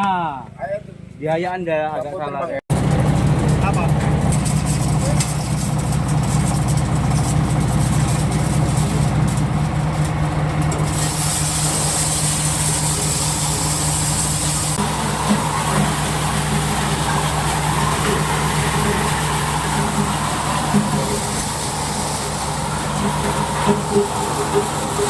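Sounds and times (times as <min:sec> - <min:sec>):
corn sheller engine humming: 0:02.7 - 0:25.0
high hissing rush: 0:10.9 - 0:25.0.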